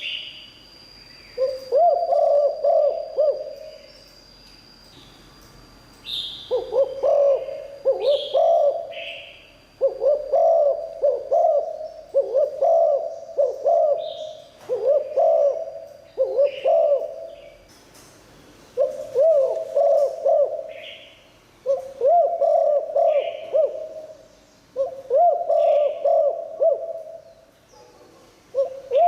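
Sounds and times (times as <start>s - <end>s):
dove cooing: 1.4s - 3.8s, 6.5s - 17.6s, 18.8s - 27.3s, 28.1s - 29.0s.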